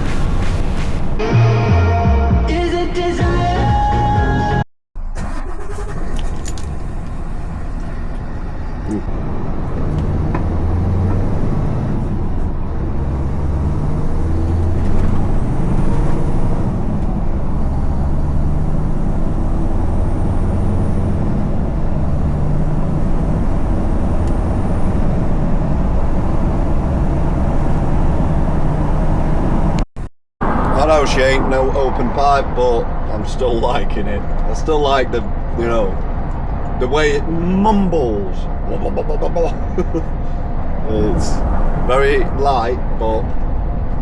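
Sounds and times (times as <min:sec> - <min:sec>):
lorry engine running: 0:05.0 - 0:29.8.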